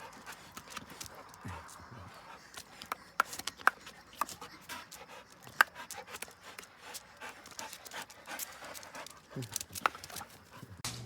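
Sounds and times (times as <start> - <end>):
dog moving with clicks and taps: 2.6 - 10.6.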